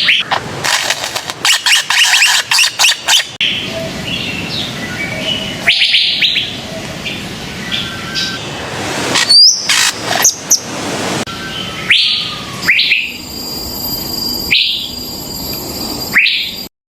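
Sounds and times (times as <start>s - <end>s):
bird whistles and rough notes: 1.4s - 3.6s, 9.2s - 10.7s, 11.3s - 16.7s.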